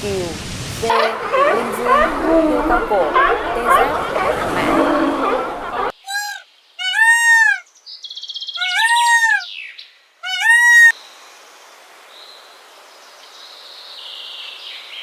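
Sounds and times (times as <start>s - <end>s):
arching animal calls: 0.9s - 5.9s.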